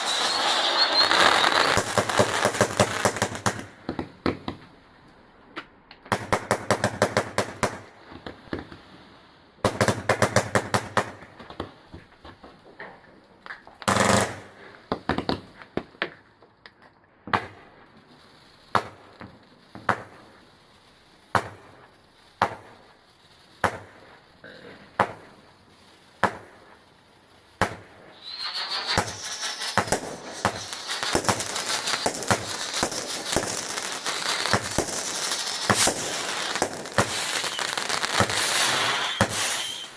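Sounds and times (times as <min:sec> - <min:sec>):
firework bangs: 0:00.0 - 0:04.7, 0:13.9 - 0:15.5, 0:17.3 - 0:17.7, 0:21.3 - 0:22.9, 0:23.6 - 0:26.8, 0:27.6 - 0:39.9
dense firework crackling: 0:00.0 - 0:04.8, 0:06.1 - 0:12.8, 0:13.7 - 0:15.8, 0:17.3 - 0:39.9
fireworks cracking: 0:00.0 - 0:04.8, 0:06.0 - 0:08.9, 0:09.6 - 0:16.2, 0:17.3 - 0:39.9.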